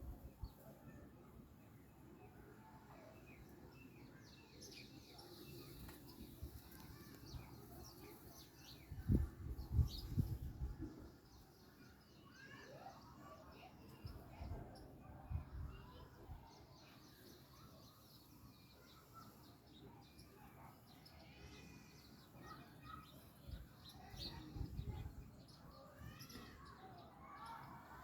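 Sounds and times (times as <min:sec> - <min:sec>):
faint bird chirps: 0:11.4 - 0:28.0.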